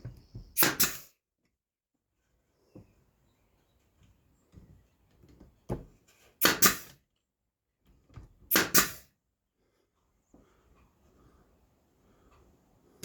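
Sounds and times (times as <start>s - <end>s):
nail gun shots: 0.6s - 1.1s, 6.4s - 7.0s, 8.5s - 9.1s.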